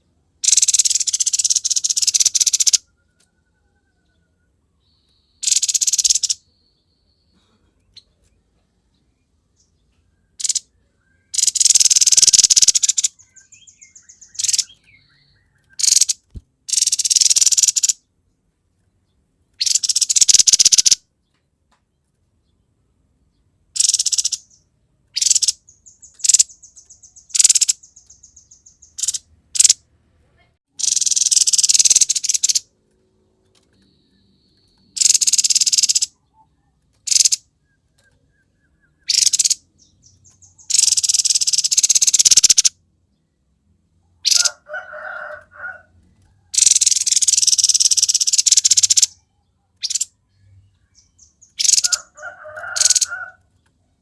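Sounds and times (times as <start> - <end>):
bird singing in scratchy bursts: 0.4 - 2.8, 5.4 - 6.4, 10.4 - 18.0, 19.6 - 21.0, 23.8 - 24.6, 25.2 - 29.8, 30.7 - 32.7, 33.8 - 36.2, 37.0 - 42.7, 46.5 - 49.2, 49.8 - 50.1, 50.9 - 53.2
buzzy bird trills: 0.4 - 4.0, 5.2 - 6.4, 10.3 - 18.0, 19.6 - 21.0, 23.8 - 24.6, 25.2 - 29.8, 30.7 - 32.7, 33.8 - 42.7, 44.2 - 44.6, 46.5 - 50.1, 51.0 - 53.4.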